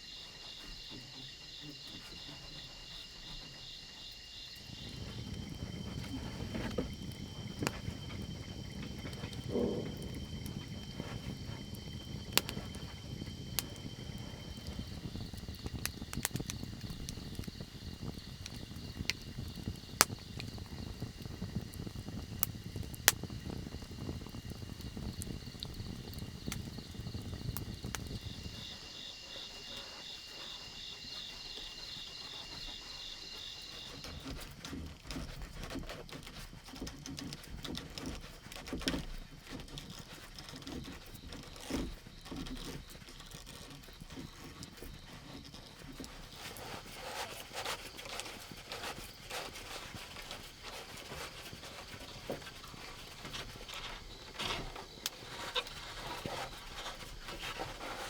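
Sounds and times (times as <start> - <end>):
fast pulsing insect trill: 0.0 - 35.6, 38.0 - 58.0
insects chirring: 0.0 - 58.0
low rumble: 4.6 - 28.6.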